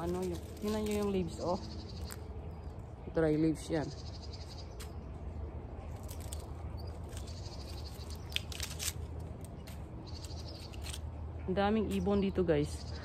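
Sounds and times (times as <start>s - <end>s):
pruning shears snipping: 0.0s - 1.5s, 5.9s - 11.2s.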